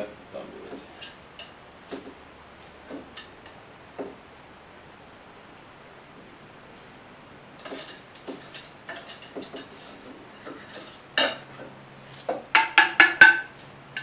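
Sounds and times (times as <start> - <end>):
metal tools clicking and tapping: 7.6 - 11.5
metal clank: 7.6 - 11.7, 12.3 - 14.0.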